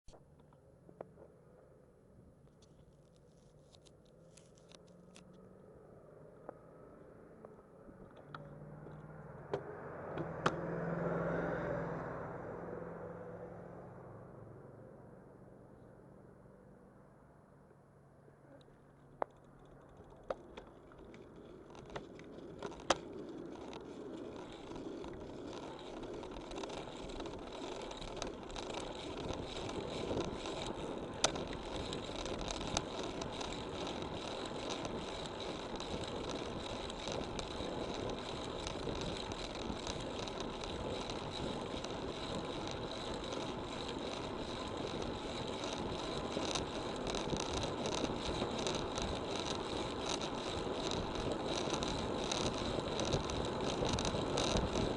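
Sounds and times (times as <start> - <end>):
bicycle tyre and wind noise: 0.1 - 13.7, 19.0 - 54.9
bicycle sharp clicks: 7.4 - 10.6, 19.0 - 54.9.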